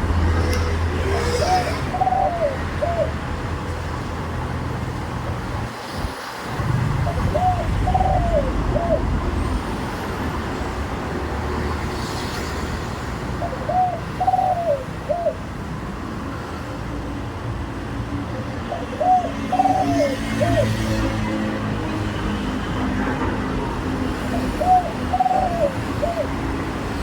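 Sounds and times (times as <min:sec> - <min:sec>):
dove cooing: 0:00.0 - 0:03.8, 0:06.6 - 0:09.8, 0:13.4 - 0:15.6, 0:18.3 - 0:21.5, 0:24.0 - 0:27.0
traffic rumble: 0:00.0 - 0:27.0.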